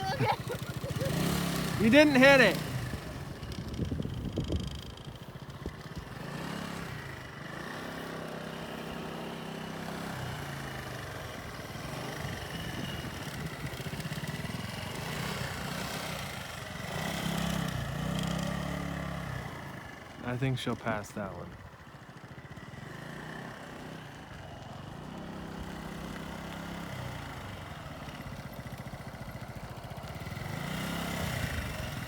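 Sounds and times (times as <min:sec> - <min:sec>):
motorcycle engine at low speed: 0:00.0 - 0:32.0.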